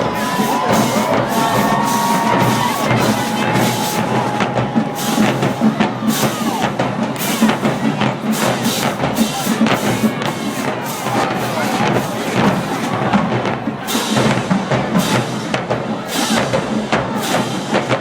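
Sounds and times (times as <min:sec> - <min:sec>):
drumline playing fast cadence: 0:00.0 - 0:18.0.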